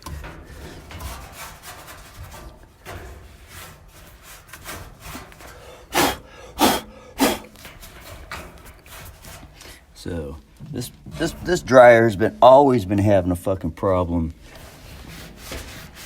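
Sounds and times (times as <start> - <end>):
rag wiping inside a cabinet: 0.0 - 10.3, 14.4 - 16.0.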